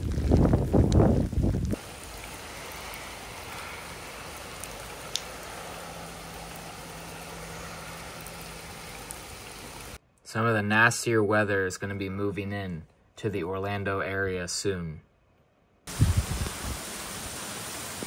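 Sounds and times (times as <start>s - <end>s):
steady rain: 0.0s - 10.0s, 15.9s - 18.0s
wind: 0.0s - 18.0s
faint ticks: 4.6s - 5.5s.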